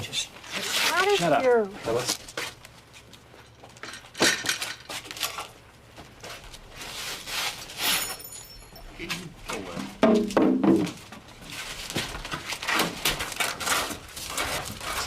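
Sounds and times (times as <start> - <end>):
high metallic ring: 7.8 - 9.0
light clinks and rattles: 7.9 - 9.3.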